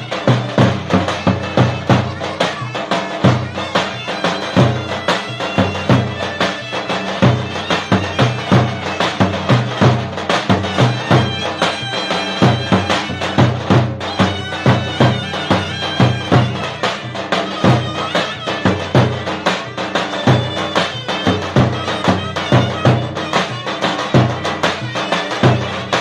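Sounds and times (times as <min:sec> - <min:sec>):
shrill reed wind instrument melody: 0:00.0 - 0:26.0
deep drum beating: 0:12.2 - 0:26.0.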